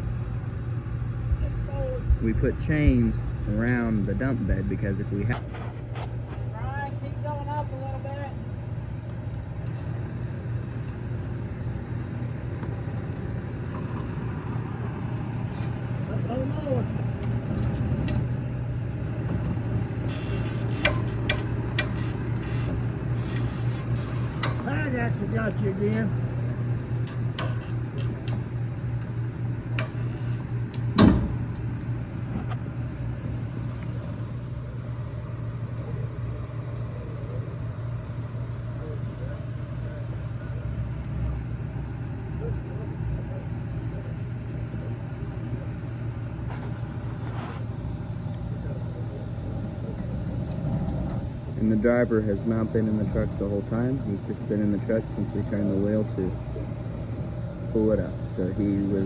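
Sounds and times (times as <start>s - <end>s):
truck diesel engine running: 0.0s - 59.0s
metallic clanks: 19.2s - 32.6s
loud thump: 30.9s - 31.5s.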